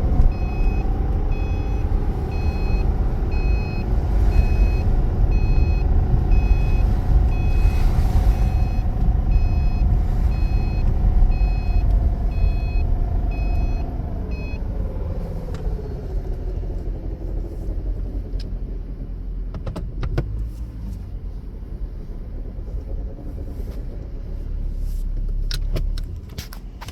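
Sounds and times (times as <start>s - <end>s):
car engine running: 0.0s - 26.9s
short electronic beeps: 0.3s - 14.6s.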